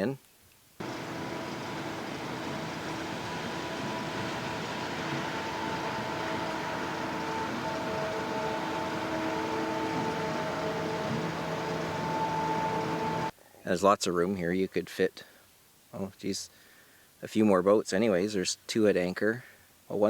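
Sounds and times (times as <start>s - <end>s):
motor running with humming tones: 0.8s - 13.3s.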